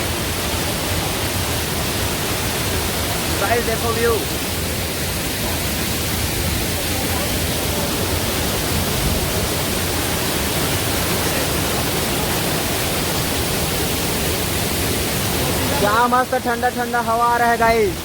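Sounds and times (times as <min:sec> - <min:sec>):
waterfall rushing: 0:00.0 - 0:18.0
wind on microphone: 0:08.3 - 0:10.8.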